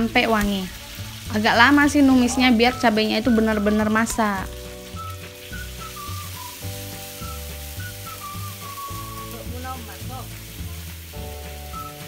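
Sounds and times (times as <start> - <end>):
background music: 0.0 - 12.0
paste sizzling in oil: 0.0 - 12.0.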